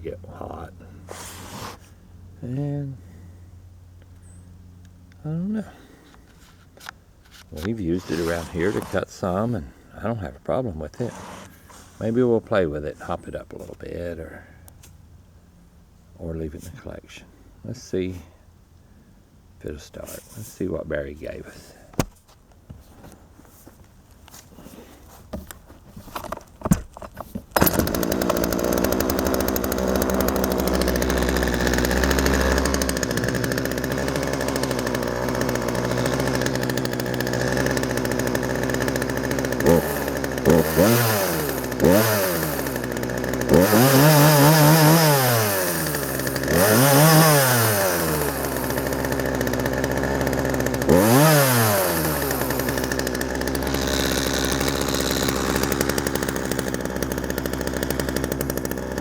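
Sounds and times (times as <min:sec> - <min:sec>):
chainsaw pull-started and revving: 0:00.8 - 0:01.9, 0:07.4 - 0:09.8, 0:10.8 - 0:12.3, 0:27.5 - 0:59.0.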